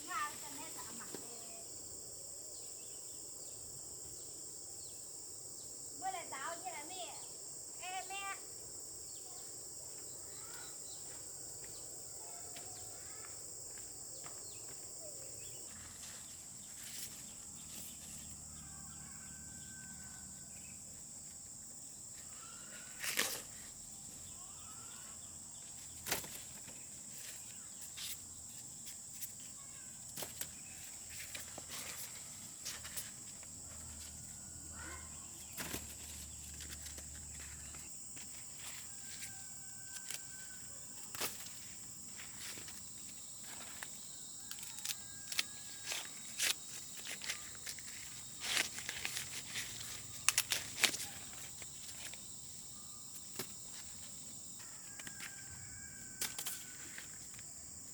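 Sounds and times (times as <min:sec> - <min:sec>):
crickets chirping: 0:00.0 - 0:57.9
faint bird chirps: 0:09.0 - 0:13.4, 0:14.1 - 0:20.8, 0:22.1 - 0:23.0, 0:23.6 - 0:26.0.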